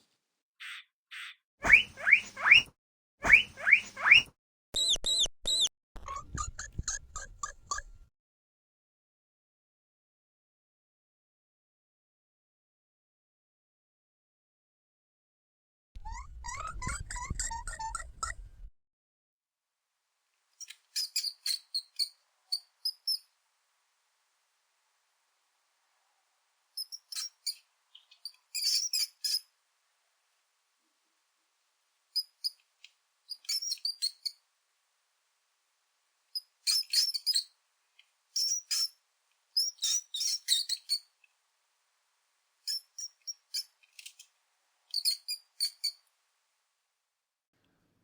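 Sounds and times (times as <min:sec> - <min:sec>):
mouse squeaks: 0:00.6 - 0:08.1, 0:16.0 - 0:18.5, 0:20.6 - 0:23.3, 0:26.8 - 0:29.5, 0:32.2 - 0:32.6, 0:33.3 - 0:34.4, 0:36.4 - 0:37.6, 0:38.4 - 0:39.0, 0:39.6 - 0:41.1, 0:42.7 - 0:44.2, 0:44.9 - 0:46.0.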